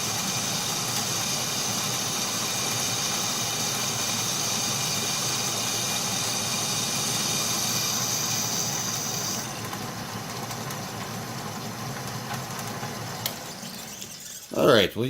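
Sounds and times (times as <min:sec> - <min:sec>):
high whine of cutting: 0:00.0 - 0:09.6
metal lathe running: 0:00.0 - 0:14.8.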